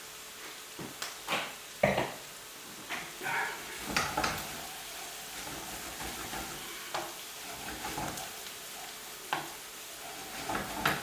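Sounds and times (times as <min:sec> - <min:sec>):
onions sizzling in oil: 0:00.0 - 0:11.0
utensil knocking on pan: 0:09.3 - 0:09.6.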